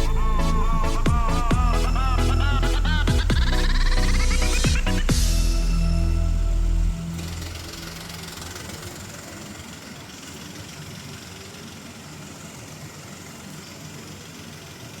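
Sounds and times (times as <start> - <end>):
mechanical hum and hiss: 5.0 - 15.0.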